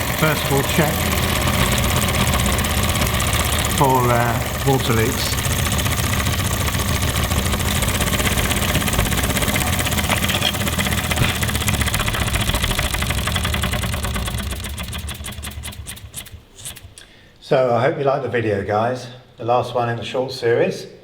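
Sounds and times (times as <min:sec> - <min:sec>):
toy steam engine beating: 0:00.0 - 0:17.0.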